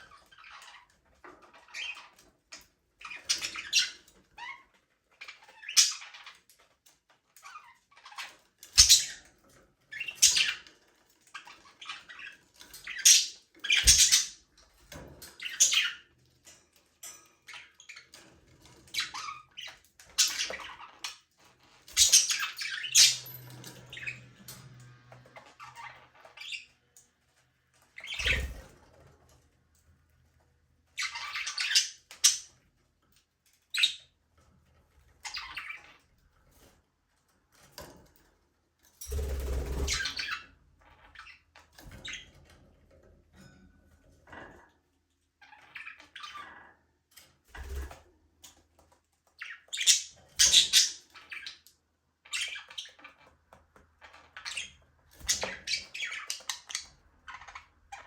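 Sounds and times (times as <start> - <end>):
budgerigars chirping and squawking: 0.0 - 6.7, 7.4 - 16.2, 17.3 - 26.8, 27.7 - 28.7, 30.9 - 32.6, 33.6 - 34.2, 35.1 - 36.1, 39.1 - 42.4, 45.4 - 46.9, 49.2 - 58.0.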